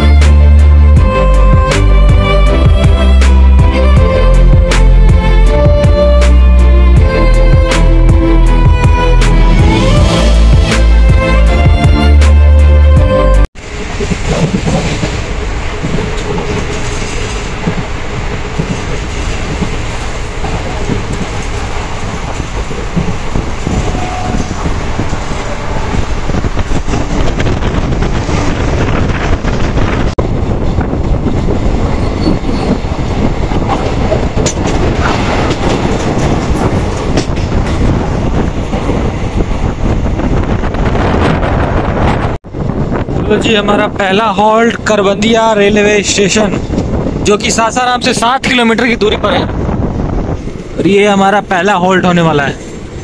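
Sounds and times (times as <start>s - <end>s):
train coach rumble: 0.0s - 53.0s
wheels clattering on track: 13.6s - 41.4s.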